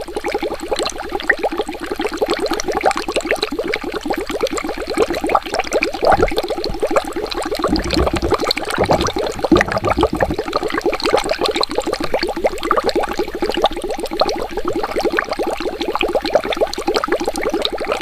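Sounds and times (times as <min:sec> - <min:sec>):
water bubbling: 0:06.1 - 0:10.9
deep gurgles: 0:06.1 - 0:11.0.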